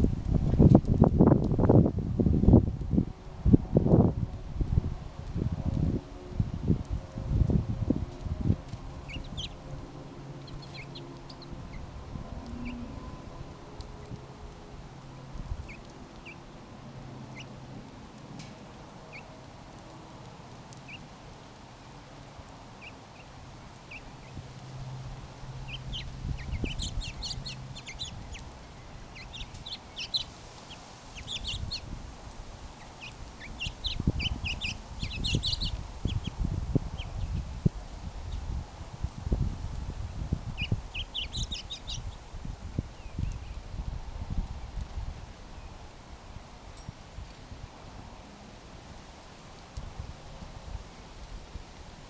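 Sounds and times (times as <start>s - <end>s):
small birds chirping: 6.8s - 47.4s.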